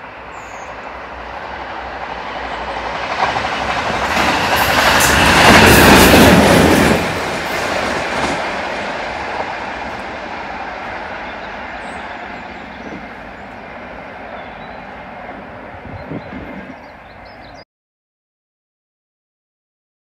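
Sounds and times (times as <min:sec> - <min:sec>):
diesel locomotive passing: 0:00.0 - 0:17.6.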